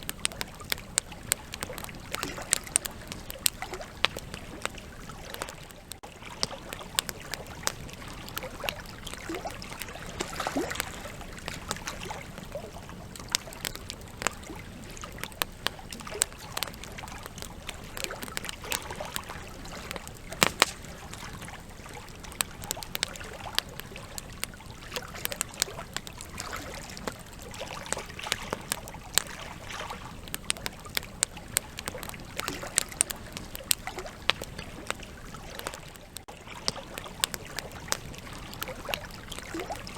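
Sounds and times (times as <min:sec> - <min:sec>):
campfire crackling and popping: 0:00.0 - 0:39.9
rush of flame: 0:19.9 - 0:21.5.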